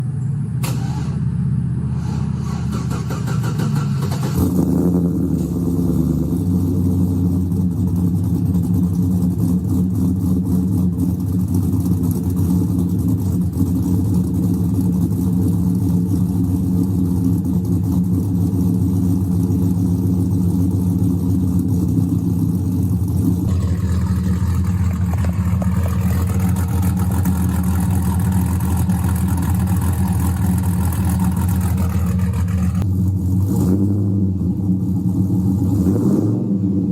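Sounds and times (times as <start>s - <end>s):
car engine choppy idle: 5.4s - 33.4s.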